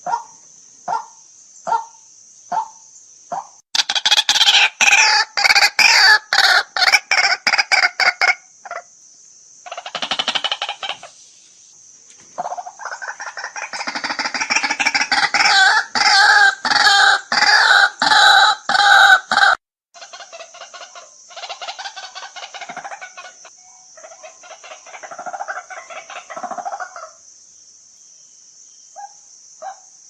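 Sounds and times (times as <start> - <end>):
bird harsh repeated calls: 0.0 - 8.8, 9.6 - 11.2, 12.4 - 27.2
steady high hiss: 8.2 - 16.2, 20.1 - 30.0.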